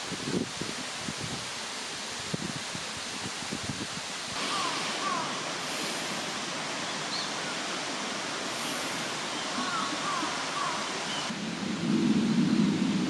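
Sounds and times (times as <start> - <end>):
steady outdoor rushing noise: 4.2 - 13.0
downward-sliding bird calls: 4.4 - 6.2, 8.6 - 11.3.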